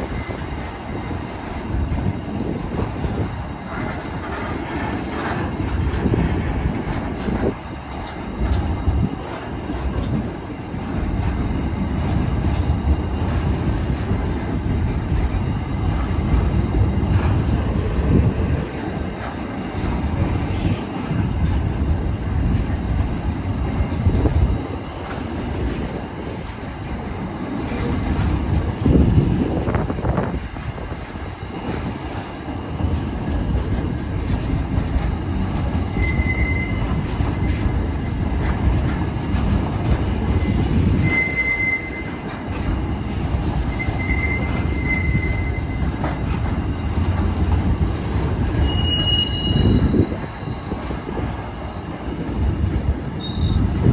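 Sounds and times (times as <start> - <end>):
train wagon wheels rumbling on rail: 0.0 - 53.9
high wheel squeals: 35.9 - 37.7, 40.2 - 42.3, 43.6 - 46.0, 48.4 - 50.6, 53.2 - 53.7.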